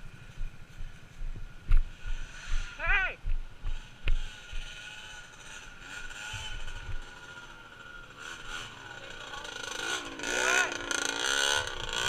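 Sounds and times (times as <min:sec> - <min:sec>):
small engine revving: 0:03.7 - 0:12.0.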